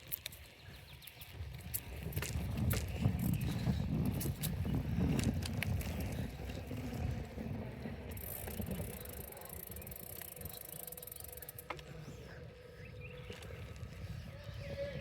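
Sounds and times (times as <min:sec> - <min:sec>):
bicycle click: 0:00.0 - 0:07.4, 0:08.1 - 0:12.0
bicycle tyres rumbling: 0:00.0 - 0:15.0
wind on microphone: 0:00.9 - 0:10.7, 0:11.7 - 0:15.0
freewheel ticking: 0:08.1 - 0:11.8.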